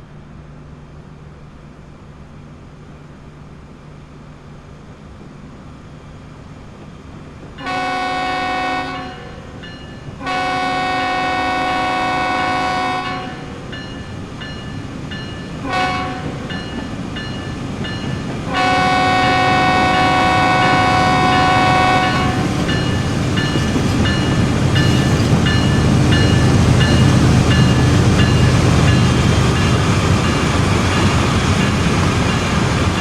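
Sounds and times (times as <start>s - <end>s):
train rumble: 0.0s - 33.0s
locomotive air horn blasts: 7.6s - 9.4s, 10.2s - 13.5s, 15.6s - 16.4s, 18.5s - 22.5s.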